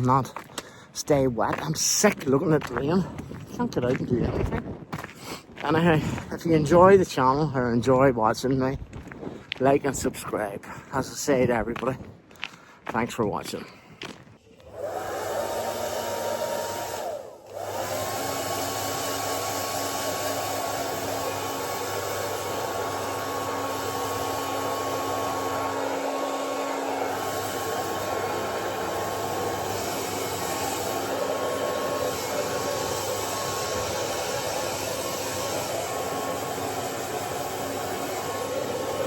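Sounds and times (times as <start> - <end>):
hair dryer blowing: 14.6 - 39.0.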